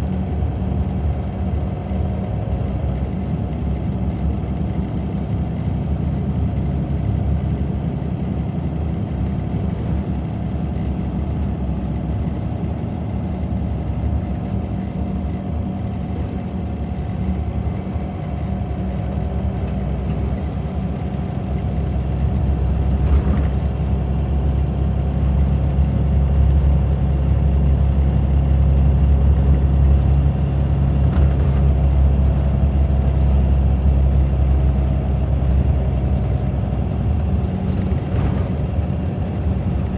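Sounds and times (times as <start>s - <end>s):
diesel bus engine running: 0.0s - 39.9s.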